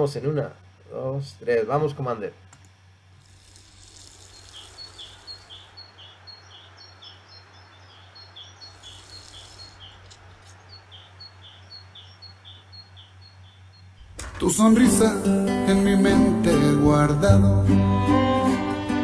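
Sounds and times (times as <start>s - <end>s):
faint hiss: 3.0s - 11.4s
bird chirping: 3.3s - 15.1s.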